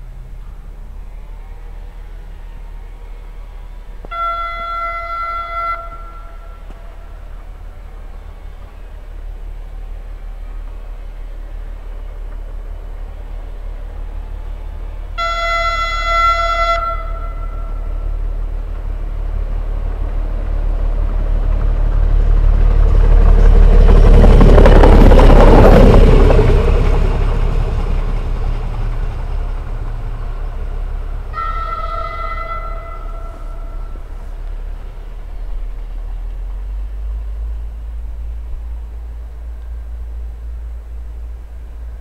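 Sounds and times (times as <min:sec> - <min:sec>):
railbus running past: 0:00.0 - 0:42.0
train horn blast: 0:03.3 - 0:08.9, 0:15.2 - 0:18.6, 0:31.2 - 0:34.7.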